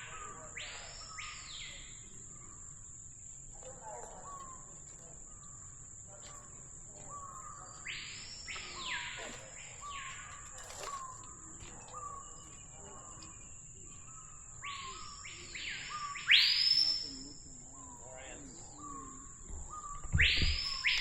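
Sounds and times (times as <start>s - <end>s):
bird sweeping calls: 14.1s - 21.0s.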